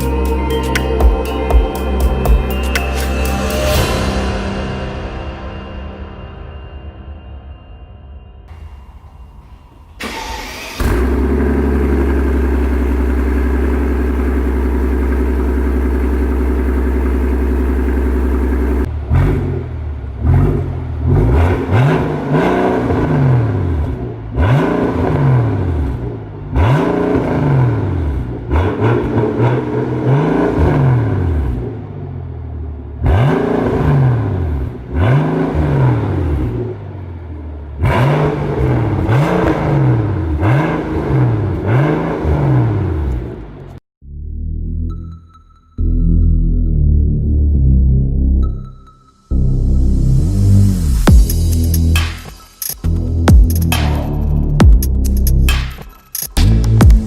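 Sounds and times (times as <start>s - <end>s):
car engine revving: 8.5s - 43.8s, 49.3s - 57.0s.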